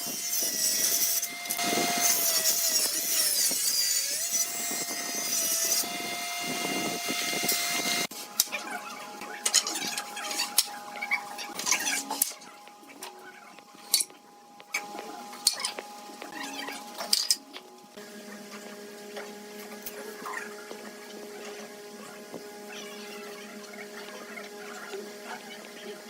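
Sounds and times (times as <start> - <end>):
power tool cutting wood: 0.0 - 17.4.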